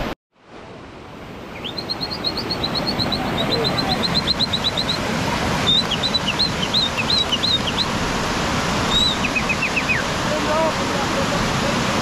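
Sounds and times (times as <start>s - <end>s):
birdsong: 1.5s - 8.0s, 8.8s - 10.2s.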